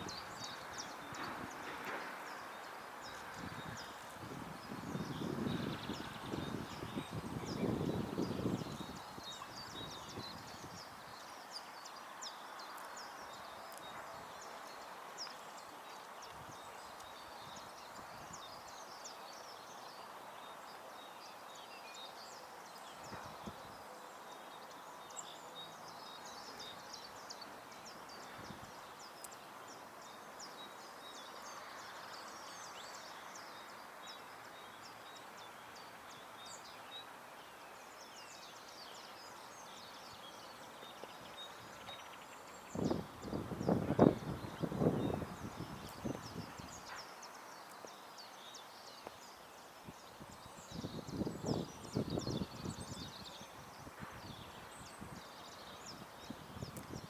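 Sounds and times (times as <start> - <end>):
outdoor background hiss: 0.0 - 57.0
songbirds chirping: 0.0 - 57.0.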